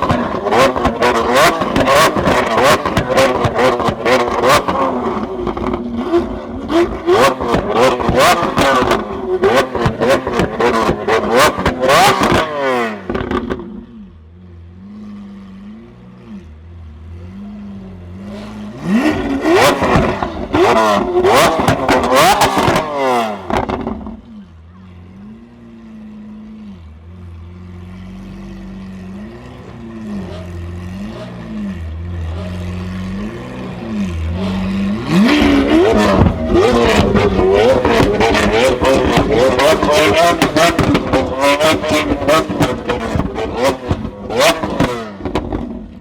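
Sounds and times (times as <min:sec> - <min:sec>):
sports car engine idling and revving: 0:00.0 - 0:46.0
exhaust pops and cracks: 0:19.2 - 0:22.9, 0:35.1 - 0:46.0.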